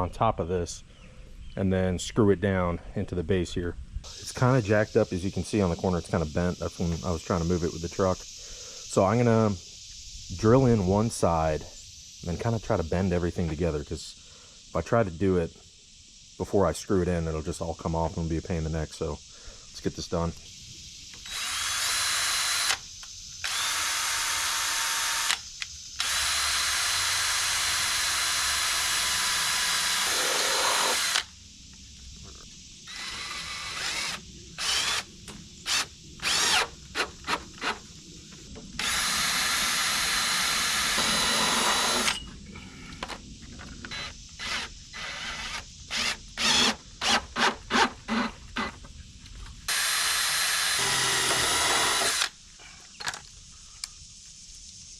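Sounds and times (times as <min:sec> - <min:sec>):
power drill driving screws: 0:21.2 - 0:22.8, 0:23.4 - 0:25.4, 0:26.0 - 0:31.3, 0:32.9 - 0:35.1, 0:35.7 - 0:37.8, 0:38.8 - 0:42.2, 0:43.9 - 0:48.7, 0:49.7 - 0:52.3
drill trigger pulls: 0:23.5 - 0:25.4, 0:26.0 - 0:31.3, 0:38.8 - 0:42.2, 0:49.7 - 0:52.3.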